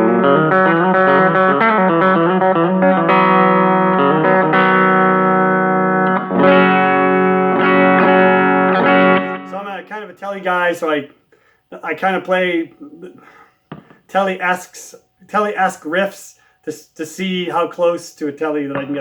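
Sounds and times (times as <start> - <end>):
clean electric guitar notes and chords: 0.0 - 9.9.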